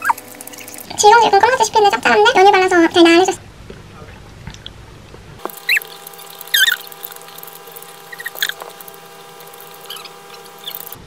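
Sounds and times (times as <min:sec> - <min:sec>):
faint steady hum: 0:00.0 - 0:11.0
high squeaky chirps: 0:05.5 - 0:11.0.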